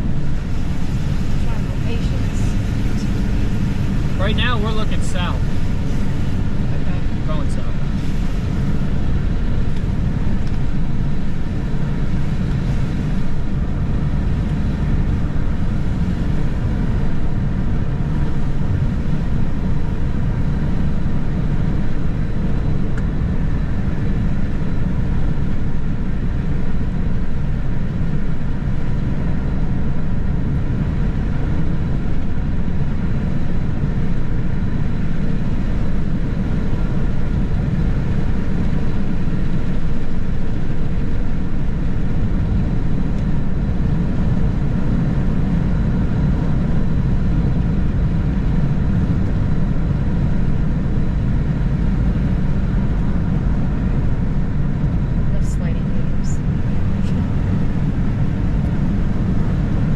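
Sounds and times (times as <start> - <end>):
car cabin road and engine rumble: 0.0 - 59.9.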